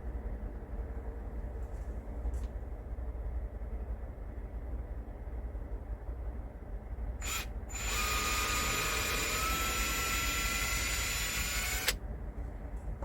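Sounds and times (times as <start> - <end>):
power tool motor whine: 7.2 - 12.0.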